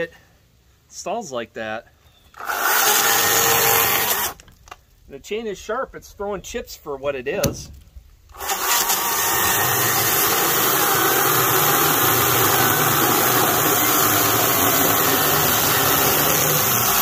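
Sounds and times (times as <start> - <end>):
chainsaw cutting through log: 2.4 - 4.4, 8.3 - 17.0.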